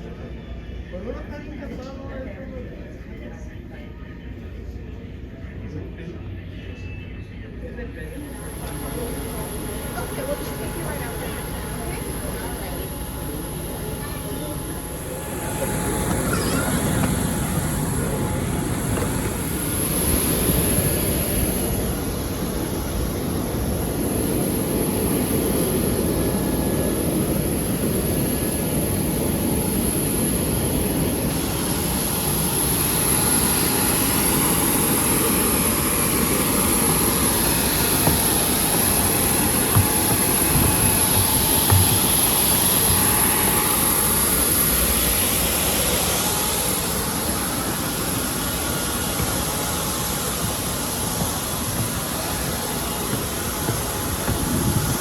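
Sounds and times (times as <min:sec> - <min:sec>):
high-pitched whine: 0:05.6 - 0:55.0
jet aircraft rushing hiss: 0:08.2 - 0:55.0.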